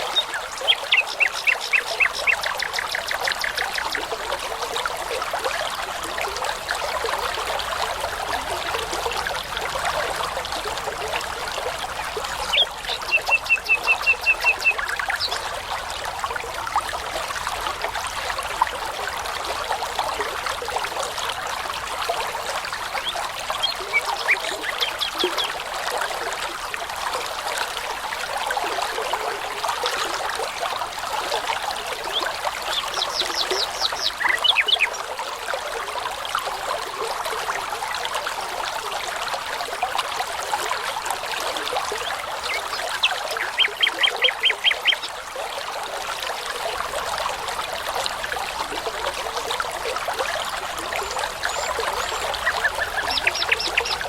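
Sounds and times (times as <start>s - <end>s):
songbirds singing: 0.0s - 4.1s, 12.0s - 15.6s, 22.9s - 25.6s, 32.0s - 35.1s, 42.0s - 45.2s, 50.8s - 54.0s
babbling brook: 0.0s - 54.0s.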